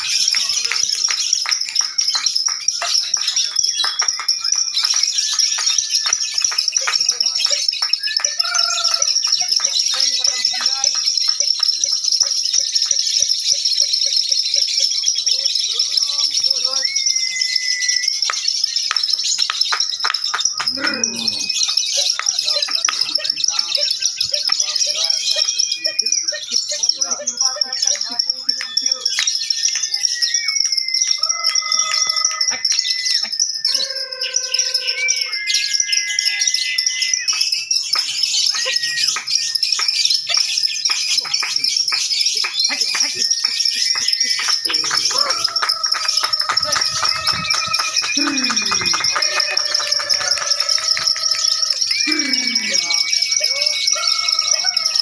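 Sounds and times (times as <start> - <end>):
lovebirds twittering: 0.0 - 55.0
held whistle-like bird tone: 14.5 - 55.0.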